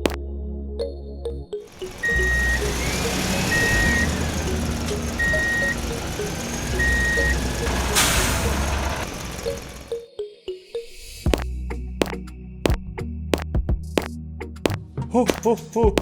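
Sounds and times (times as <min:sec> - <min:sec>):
light background music: 0:00.0 - 0:16.0
vehicle reversing beeper: 0:01.7 - 0:10.0
rising and falling whine: 0:01.8 - 0:09.9
hiss: 0:05.8 - 0:09.8.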